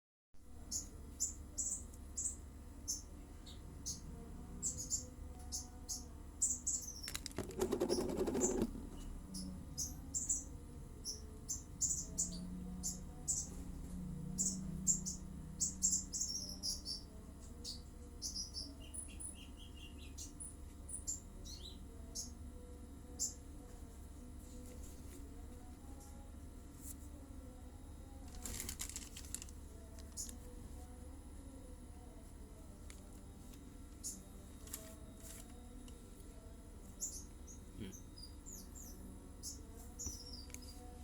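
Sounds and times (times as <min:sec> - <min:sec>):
faint low hum: 0:00.4 - 0:41.0
small birds chirping: 0:00.6 - 0:13.7, 0:14.4 - 0:22.4, 0:23.1 - 0:23.4, 0:29.8 - 0:30.5, 0:34.0 - 0:34.4, 0:36.4 - 0:41.0.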